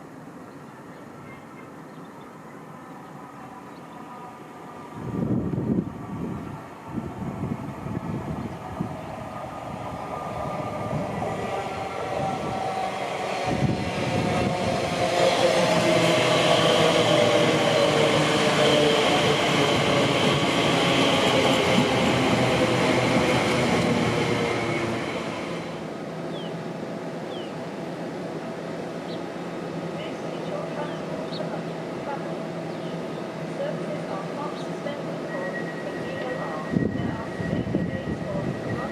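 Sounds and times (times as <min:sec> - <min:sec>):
train passing on tracks: 0:00.0 - 0:38.9.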